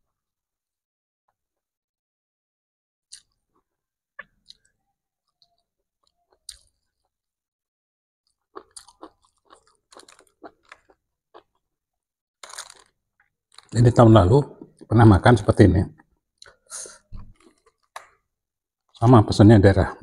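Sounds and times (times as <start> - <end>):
chewing and crunching: 5.3 - 7.1, 8.3 - 11.6, 12.4 - 13.8, 17.2 - 18.2.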